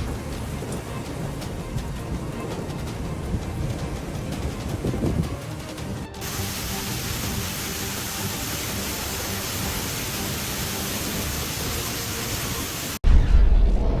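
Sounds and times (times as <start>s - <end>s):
heavy rushing water hiss: 0.0s - 13.0s
low rumble: 13.0s - 14.0s.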